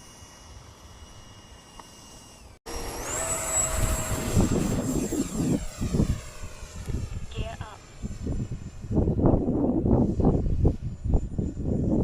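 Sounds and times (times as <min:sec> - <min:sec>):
electric ducted fan whining: 0:00.0 - 0:12.0
wind buffeting microphone: 0:03.7 - 0:12.0.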